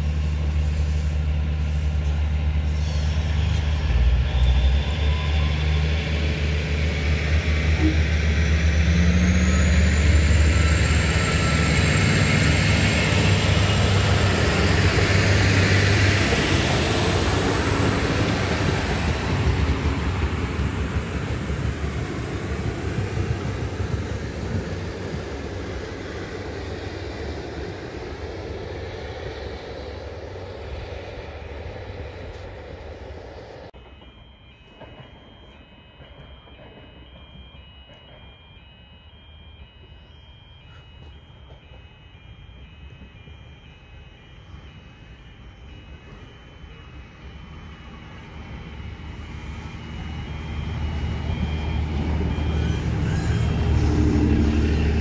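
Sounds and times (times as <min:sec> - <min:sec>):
locomotive engine droning: 0:00.0 - 0:55.0
high-pitched metallic squeal: 0:00.6 - 0:16.8, 0:47.6 - 0:55.0.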